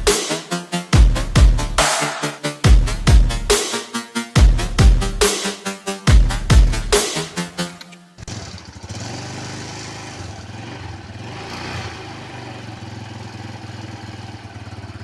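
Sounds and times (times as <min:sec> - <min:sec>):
motorcycle engine idling: 0:08.2 - 0:15.0.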